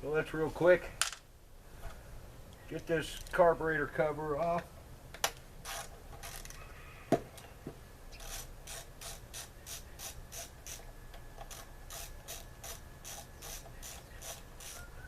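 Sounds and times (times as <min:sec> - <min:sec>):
ratchet wrench clicking: 0:05.6 - 0:06.6, 0:08.2 - 0:10.8, 0:11.5 - 0:14.8.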